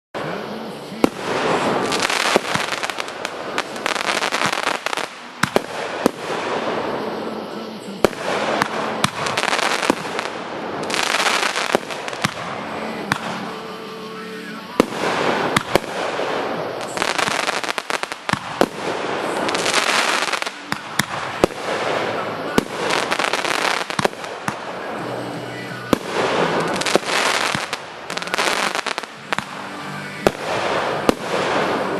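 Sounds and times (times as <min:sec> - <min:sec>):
fireworks crackling and popping: 0:00.2 - 0:31.9
firework bang: 0:01.0 - 0:07.3, 0:08.0 - 0:13.6, 0:14.8 - 0:24.8, 0:30.2 - 0:31.9.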